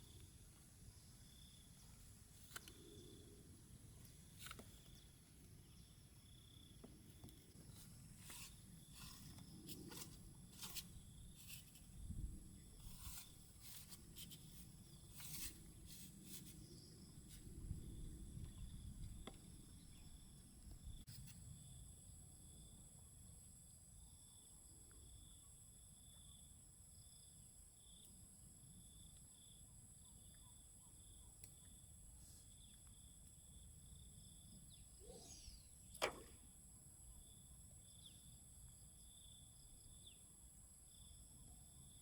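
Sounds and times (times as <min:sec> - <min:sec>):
steady high-pitched hum: 0:34.7 - 0:36.6.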